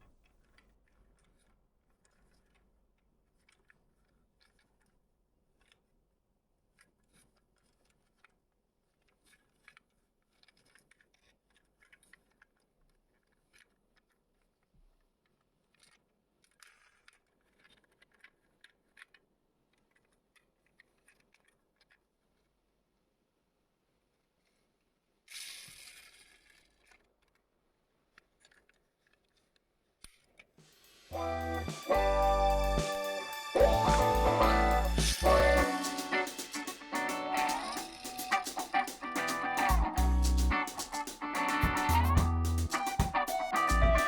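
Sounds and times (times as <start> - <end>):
small clicks of model cars handled: 0.3 - 5.0, 5.6 - 5.9, 6.7 - 22.6, 25.3 - 30.5.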